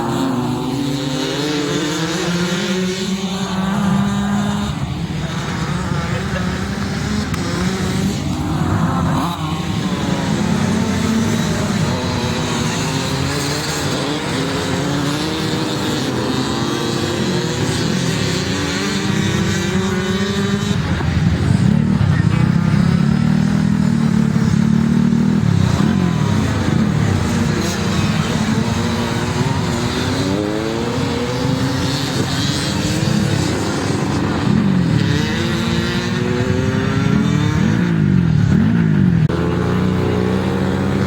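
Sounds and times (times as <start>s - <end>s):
racing motorcycles revving: 0.0s - 41.0s.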